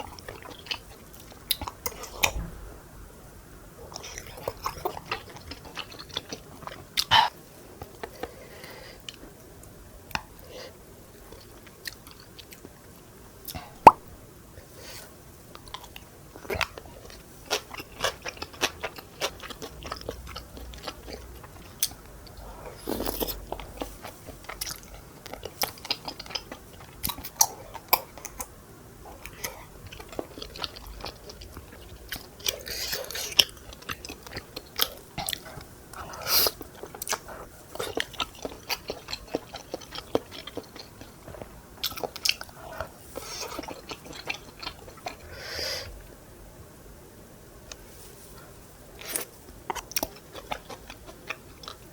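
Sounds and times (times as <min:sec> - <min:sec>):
chewing and biting food: 0:00.0 - 0:02.4, 0:03.9 - 0:08.3, 0:15.6 - 0:28.5, 0:29.1 - 0:45.3, 0:49.0 - 0:51.9.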